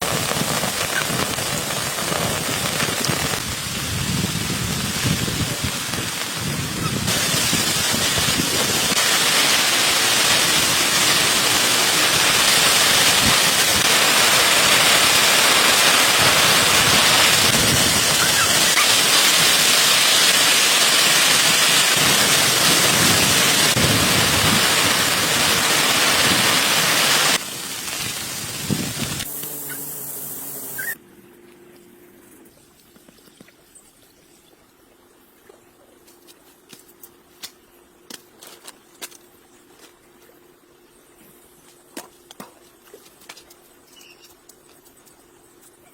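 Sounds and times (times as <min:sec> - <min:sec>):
heavy rain falling: 0:00.0 - 0:29.2.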